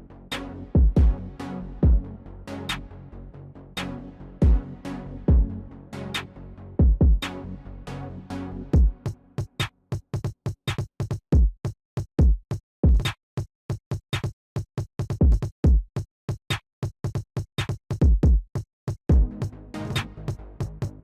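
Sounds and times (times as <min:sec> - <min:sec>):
deep kick drum thumps: 0:00.8 - 0:01.2, 0:01.8 - 0:02.0, 0:05.3 - 0:05.5, 0:06.8 - 0:07.2, 0:08.8 - 0:09.0, 0:11.4 - 0:11.6, 0:12.2 - 0:13.0, 0:15.2 - 0:15.9, 0:18.0 - 0:18.5, 0:19.1 - 0:19.4
drum machine beat: 0:00.8 - 0:01.2, 0:01.8 - 0:02.0, 0:06.8 - 0:07.3, 0:08.8 - 0:13.2, 0:13.9 - 0:20.1.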